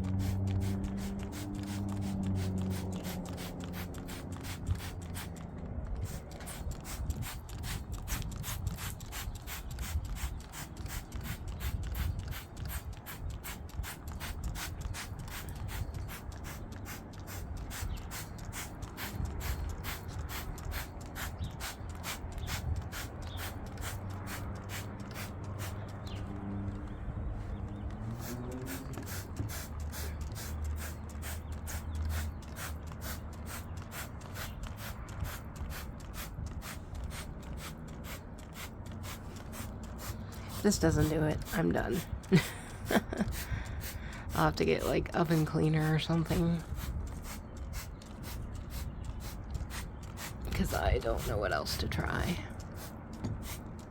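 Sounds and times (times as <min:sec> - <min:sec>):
scrubbing on a hard surface: 0:00.0 - 0:05.4.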